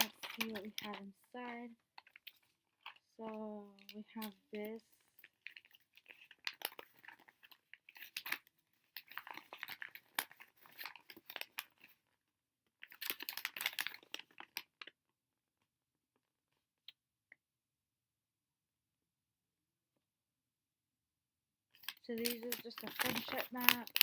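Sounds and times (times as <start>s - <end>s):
packaging crinkling: 0.0s - 12.0s, 12.8s - 14.9s, 21.8s - 24.0s.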